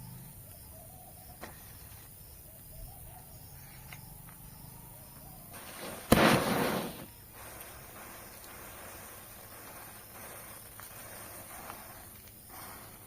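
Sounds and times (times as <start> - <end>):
firecracker hiss and bang: 5.5 - 13.0.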